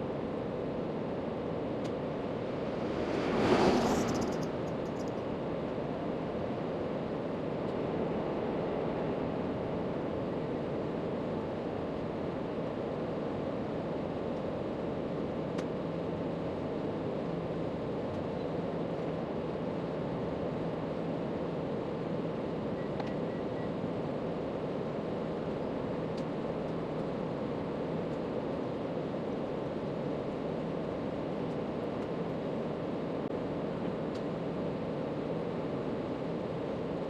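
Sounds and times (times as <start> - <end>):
steady rushing noise: 1.6 - 5.3.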